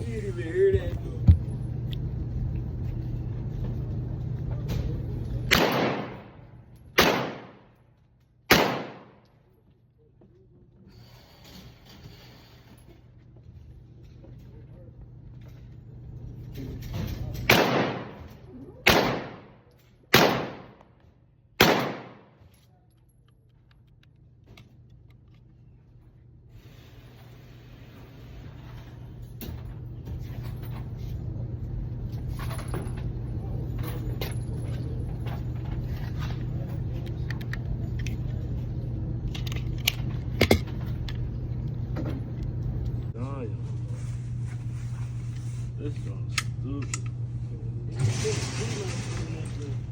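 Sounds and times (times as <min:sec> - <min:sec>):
low mechanical hum: 0:00.0 - 0:49.9
gunshots with ringing tail: 0:05.5 - 0:07.7, 0:08.5 - 0:09.3, 0:17.5 - 0:20.8, 0:21.6 - 0:22.4.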